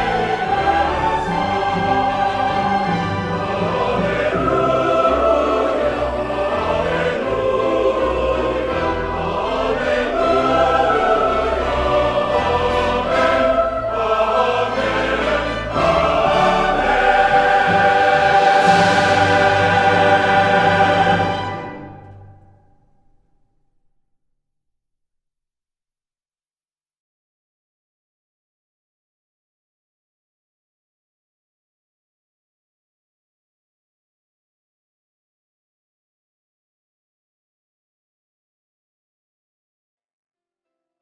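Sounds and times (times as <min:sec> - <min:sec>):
orchestra playing: 0:00.0 - 0:22.6
choir singing: 0:00.0 - 0:22.7.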